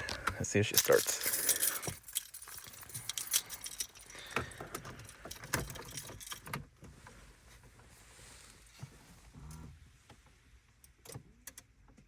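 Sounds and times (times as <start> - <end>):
car keys jangling: 0.0 - 6.8.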